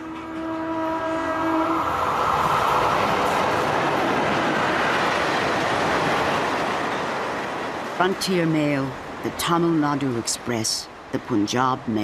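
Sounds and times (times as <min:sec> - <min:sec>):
train horn chord: 0:00.0 - 0:02.1
passing train rumble: 0:00.0 - 0:12.0.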